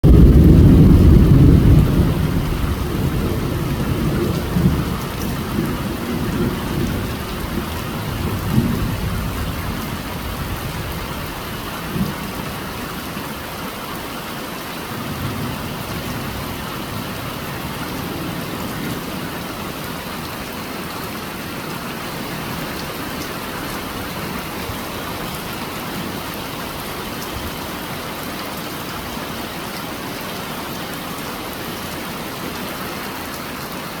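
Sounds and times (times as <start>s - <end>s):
thunder rumbling: 0.0s - 12.8s
heavy rain: 0.0s - 34.0s.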